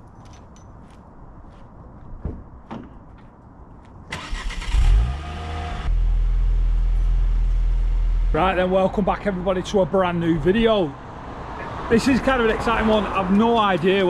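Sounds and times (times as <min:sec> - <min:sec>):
car engine starting and idling: 0:04.1 - 0:08.7.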